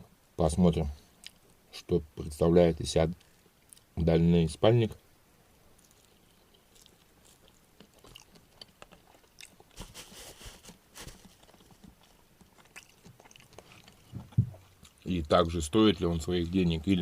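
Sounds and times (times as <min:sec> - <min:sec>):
rustling: 0:05.7 - 0:17.0.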